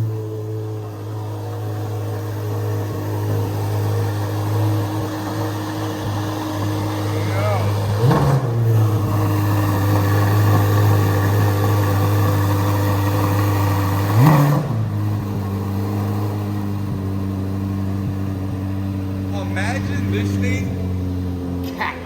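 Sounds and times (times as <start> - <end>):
car engine high idle: 0.0 - 22.0
engine rev blip: 4.7 - 15.4, 18.4 - 22.0.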